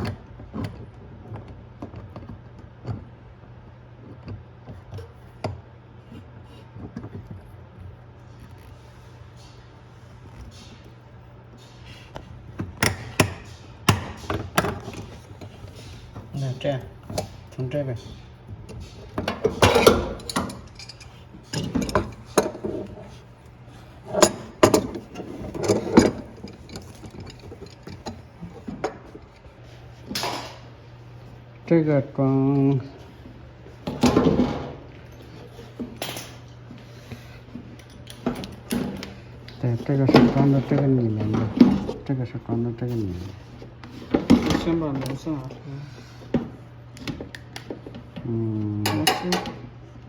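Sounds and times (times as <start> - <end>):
steady low hum: 4.9 - 50.0
clicks and knocks of tools: 11.6 - 29.5.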